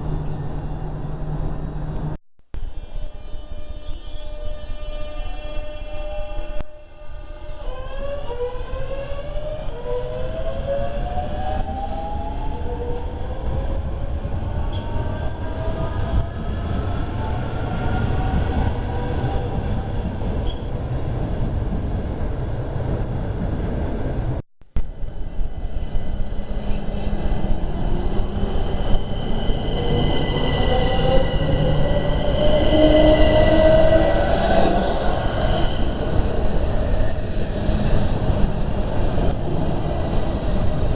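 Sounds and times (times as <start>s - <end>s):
rail rumble: 10.1s - 40.9s.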